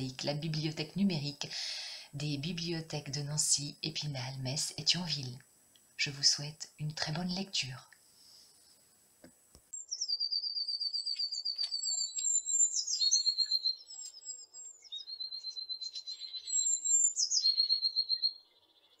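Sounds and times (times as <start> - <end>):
bird singing rapid trills: 9.7 - 19.0.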